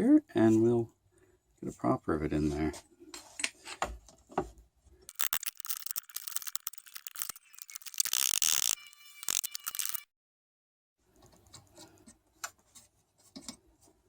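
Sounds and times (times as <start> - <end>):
metallic ratcheting clicks: 5.1 - 10.0.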